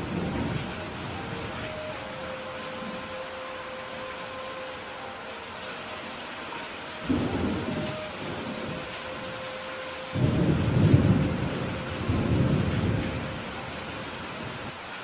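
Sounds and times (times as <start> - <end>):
thunder rumbling: 0.0 - 3.1, 7.0 - 14.7
rain hiss: 0.0 - 15.0.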